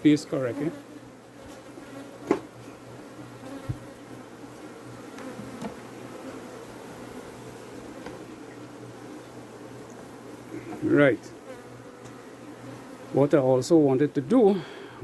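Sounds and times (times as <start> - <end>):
bees buzzing: 0.0 - 15.0
light knocks: 2.2 - 2.5.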